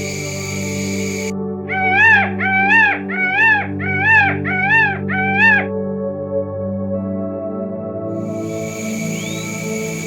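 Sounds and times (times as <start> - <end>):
background music: 0.0 - 10.0
animal high-pitched calls: 1.7 - 5.7.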